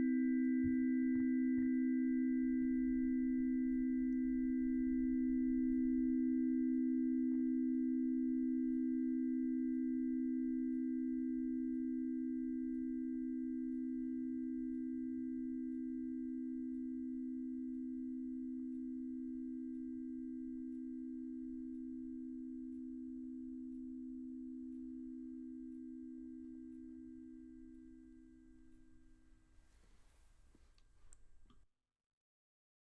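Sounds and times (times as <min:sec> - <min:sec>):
tuning forks ringing: 0:00.0 - 0:11.3.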